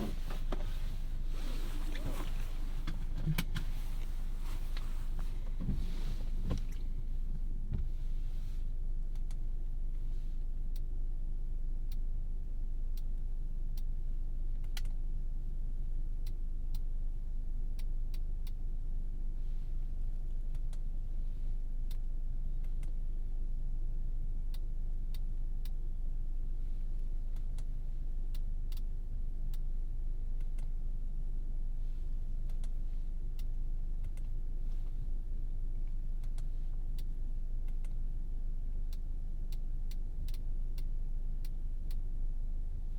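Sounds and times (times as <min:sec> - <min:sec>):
car cabin road and engine rumble: 0:00.0 - 0:13.2, 0:24.3 - 0:42.9.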